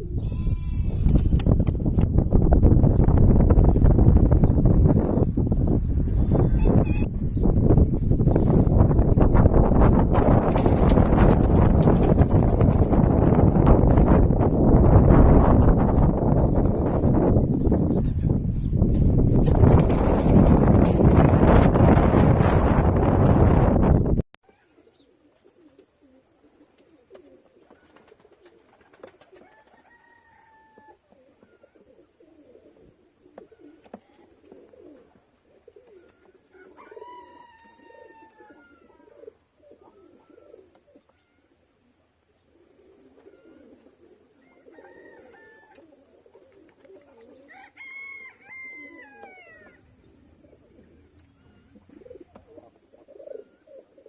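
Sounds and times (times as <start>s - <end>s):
pigeons cooing: 0.0s - 1.5s, 24.5s - 54.0s
higher falling pigeon call: 24.4s - 41.6s, 42.5s - 54.0s.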